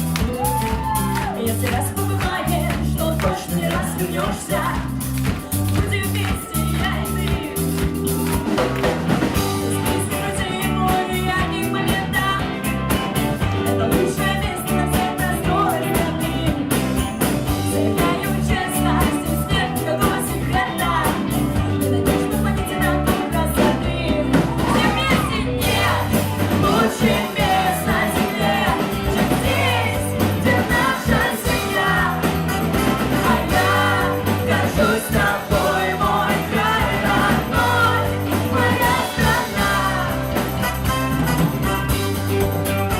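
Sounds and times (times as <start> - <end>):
rock band playing live: 0.0 - 42.9
person singing: 9.5 - 17.0, 17.6 - 40.7.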